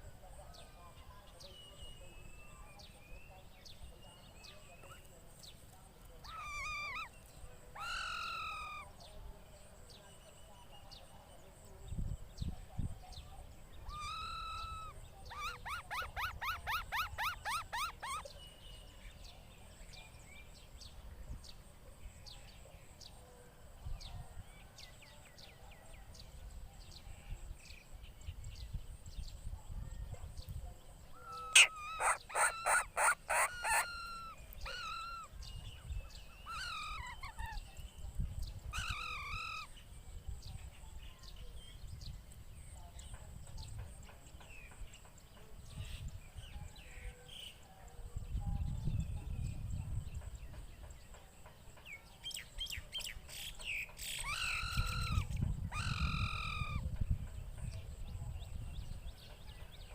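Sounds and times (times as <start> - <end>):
birds calling harsh notes: 1.6 - 9.0, 13.6 - 20.9, 31.1 - 47.6, 51.8 - 58.0.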